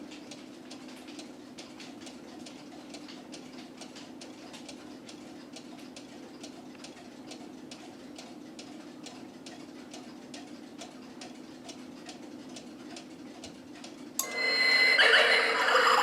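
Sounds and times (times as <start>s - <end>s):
clock ticking: 0.0s - 14.9s
held high tone: 14.2s - 16.0s.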